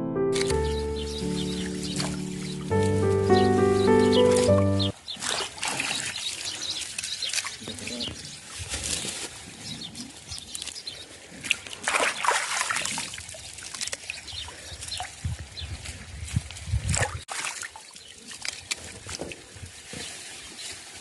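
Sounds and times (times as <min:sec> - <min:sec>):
background music: 0:00.0 - 0:04.9
water trickling and splashing: 0:05.0 - 0:21.0.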